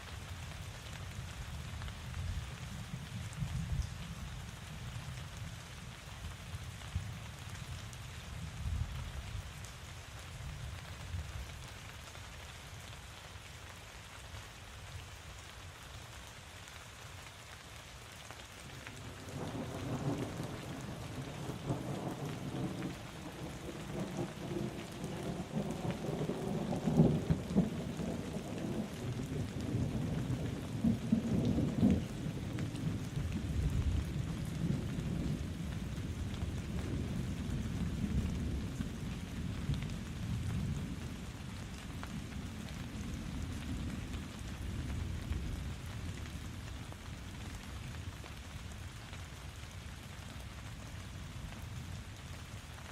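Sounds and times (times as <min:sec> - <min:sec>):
steady rain falling: 0:00.0 - 0:52.9
thunder rumbling: 0:19.2 - 0:41.3.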